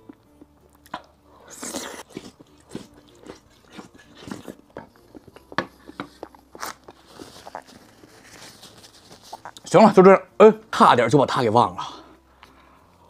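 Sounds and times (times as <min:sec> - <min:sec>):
wet chewing and lip smacks: 0:00.0 - 0:08.2, 0:09.2 - 0:09.7.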